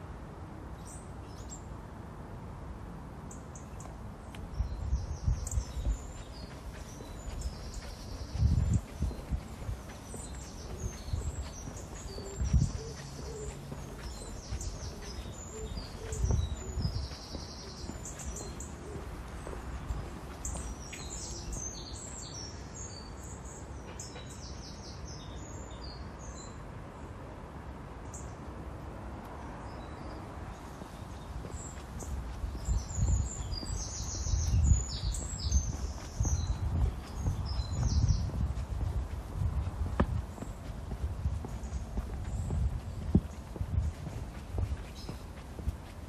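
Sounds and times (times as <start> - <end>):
birds chirping and singing: 4.6 - 23.1, 30.6 - 39.6, 41.3 - 45.7.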